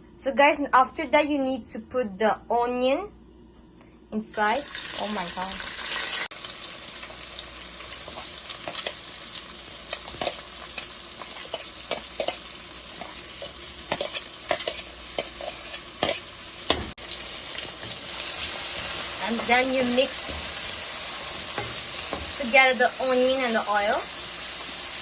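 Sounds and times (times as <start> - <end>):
onion sizzling in oil: 4.2 - 25.0
spoon scraping a pan: 9.9 - 16.9.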